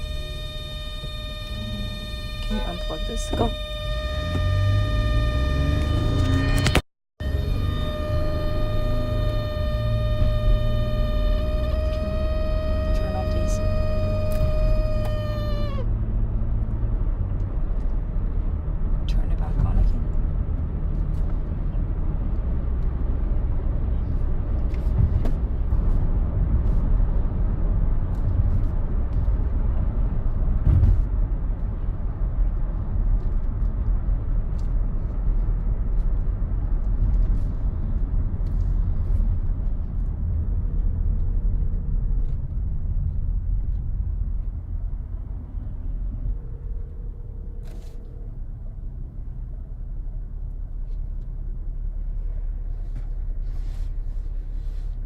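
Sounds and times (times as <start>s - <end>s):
faint interior panel buzz: 0.0s - 15.9s
low cabin rumble: 0.0s - 55.0s.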